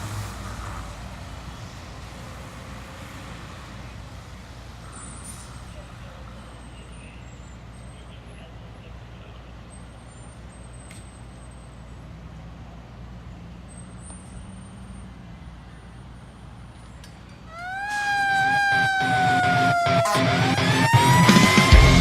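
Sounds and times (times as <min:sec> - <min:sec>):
fire engine idling: 0:00.0 - 0:12.0, 0:15.4 - 0:22.0
wailing siren: 0:17.5 - 0:22.0.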